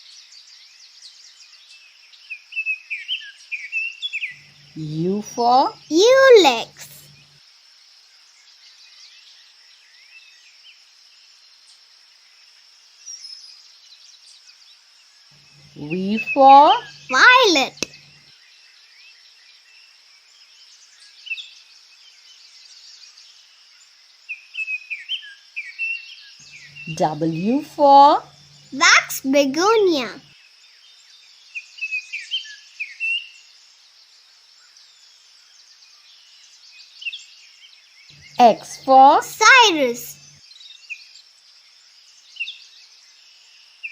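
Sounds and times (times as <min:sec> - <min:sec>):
songbirds chirping: 0:00.0 - 0:43.9
steady high hiss of outdoor ambience: 0:00.0 - 0:43.9
birds chirping: 0:04.3 - 0:07.2, 0:15.4 - 0:18.2, 0:26.4 - 0:30.2, 0:38.1 - 0:40.4.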